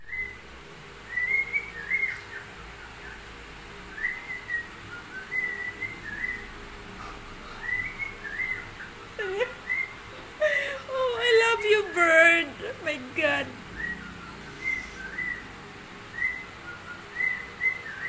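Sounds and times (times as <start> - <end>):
bird whistling high notes: 3.9 - 6.5, 13.8 - 15.5, 16.1 - 18.0.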